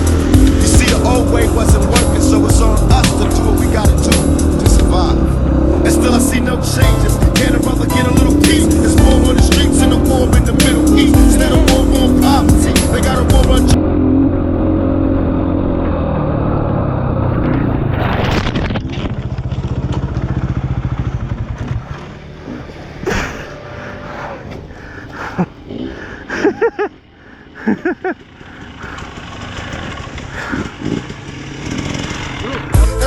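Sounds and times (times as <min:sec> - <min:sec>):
dirt bike engine: 0:00.0 - 0:33.0.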